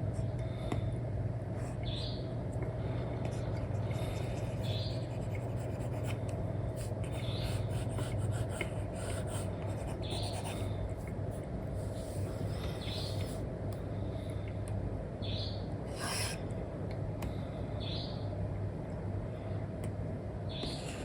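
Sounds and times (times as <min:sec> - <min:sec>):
low background hum: 0:00.0 - 0:21.0
stylus scratching and tapping: 0:03.3 - 0:11.2.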